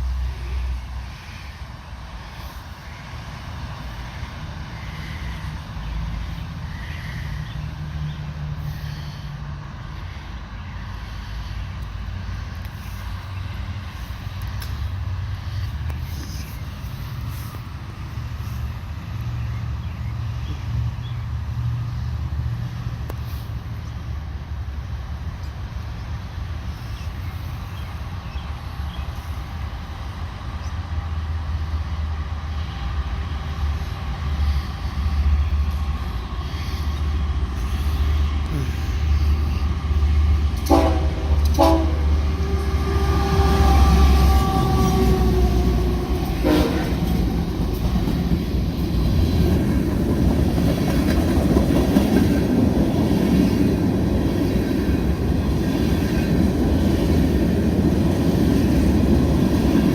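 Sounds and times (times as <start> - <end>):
diesel locomotives rumbling: 0.0 - 59.9
steel wheels rolling on rails: 33.5 - 59.9
train horn blasts: 40.6 - 47.3.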